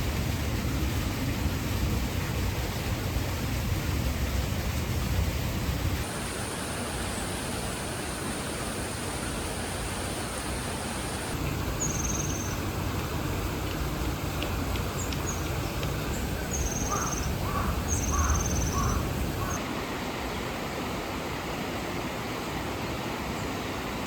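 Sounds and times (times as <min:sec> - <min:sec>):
rushing flowing water: 0:00.0 - 0:24.0
bird chirp: 0:11.8 - 0:12.6, 0:15.0 - 0:19.6.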